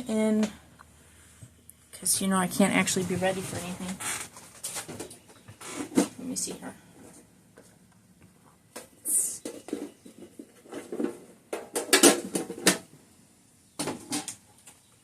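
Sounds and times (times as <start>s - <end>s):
plastic items clicking and knocking: 8.7s - 12.9s, 13.8s - 14.8s.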